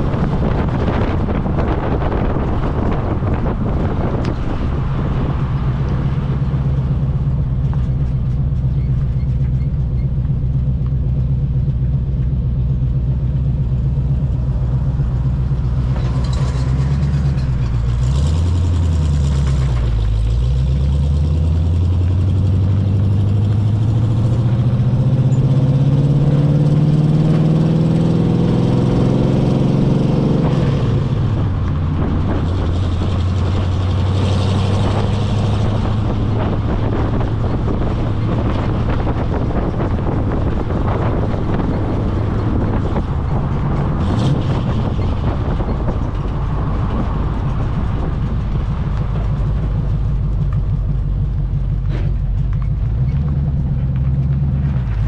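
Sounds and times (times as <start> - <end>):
truck engine pulling a load: 0.0 - 55.0.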